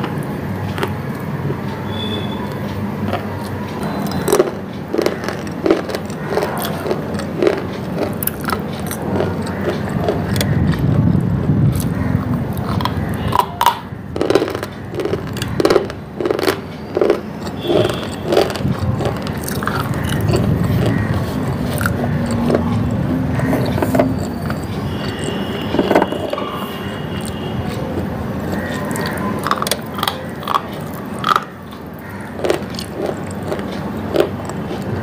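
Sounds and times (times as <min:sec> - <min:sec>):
person crunching chalk: 0:11.7 - 0:25.2.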